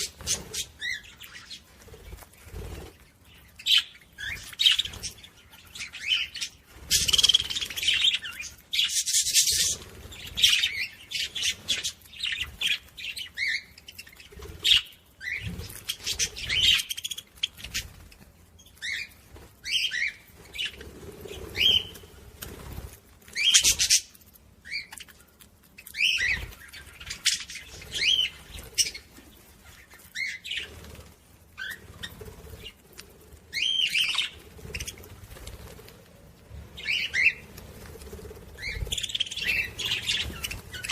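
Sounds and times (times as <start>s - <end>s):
budgerigars chattering: 38.6s - 40.9s.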